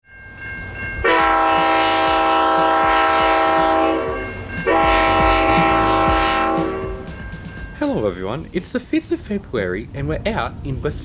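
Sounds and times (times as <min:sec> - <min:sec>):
train rumble: 0:00.0 - 0:11.0
locomotive air horn blasts: 0:01.0 - 0:07.2.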